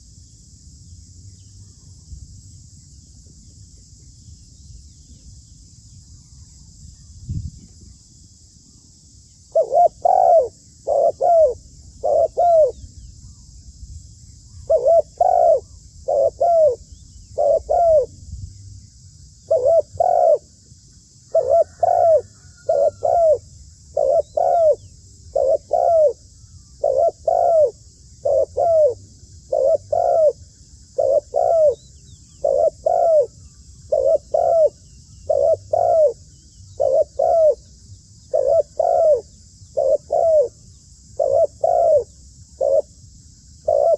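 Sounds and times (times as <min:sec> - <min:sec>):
dove cooing: 0:09.5 - 0:12.8, 0:14.6 - 0:16.8, 0:17.4 - 0:18.1, 0:19.5 - 0:20.5, 0:21.3 - 0:37.7, 0:38.3 - 0:43.0, 0:43.6 - 0:43.9.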